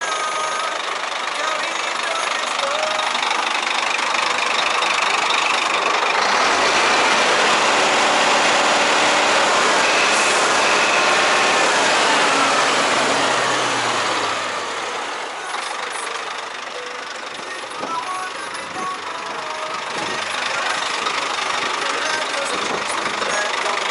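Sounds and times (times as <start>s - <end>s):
truck diesel engine running: 0.0s - 23.9s.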